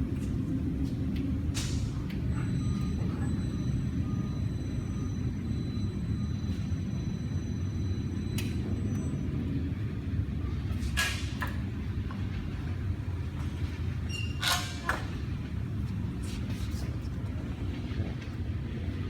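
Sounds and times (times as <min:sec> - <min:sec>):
steady low rumble: 0:15.1 - 0:19.0.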